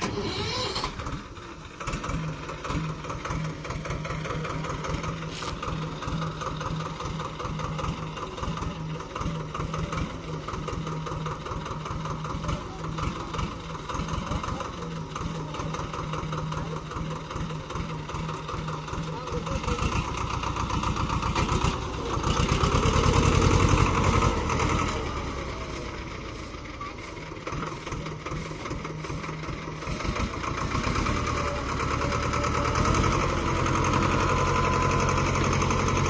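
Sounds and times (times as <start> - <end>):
tractor diesel engine idling: 0.0 - 36.0.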